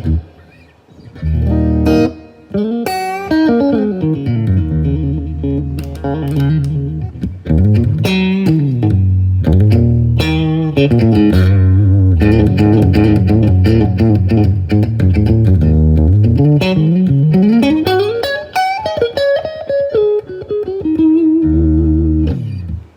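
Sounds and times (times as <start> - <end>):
electric guitar melody: 0.0 - 22.9
sustained low bass notes: 4.2 - 17.6.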